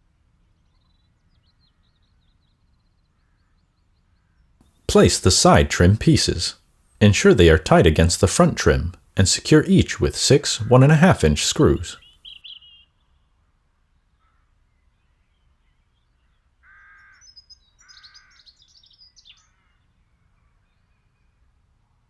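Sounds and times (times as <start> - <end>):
small birds chirping: 12.0 - 12.8, 17.2 - 19.5.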